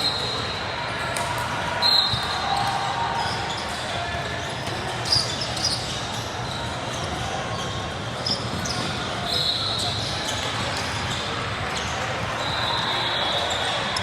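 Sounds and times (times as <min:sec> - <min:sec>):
crowd chatter: 0:00.0 - 0:14.0
shoe squeaks: 0:04.4 - 0:14.0.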